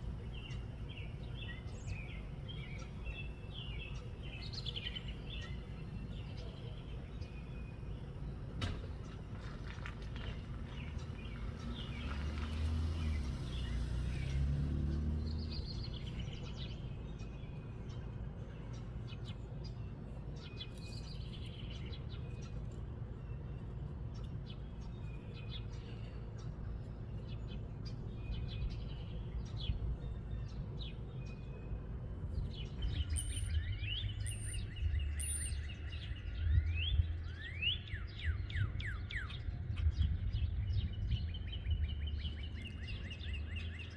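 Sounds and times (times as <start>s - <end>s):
small birds chirping: 0.0s - 43.9s
wind rumbling on microphone: 26.9s - 43.9s.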